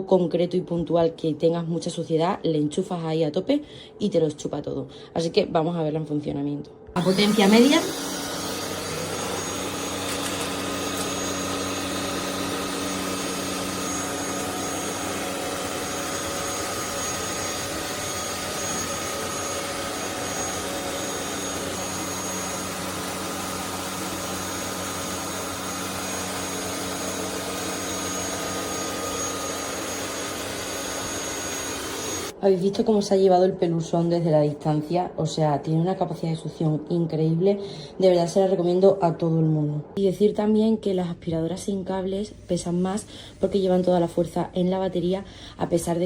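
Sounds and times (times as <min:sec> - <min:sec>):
vacuum cleaner motor whine: 0:07.0 - 0:32.4.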